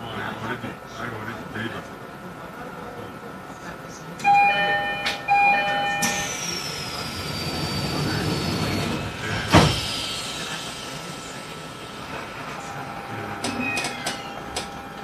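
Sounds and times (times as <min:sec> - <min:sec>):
train door chime: 0:04.2 - 0:06.8, 0:12.5 - 0:15.0
train doors thudding shut: 0:04.2 - 0:10.7, 0:12.1 - 0:15.0
hiss of air: 0:06.4 - 0:12.7.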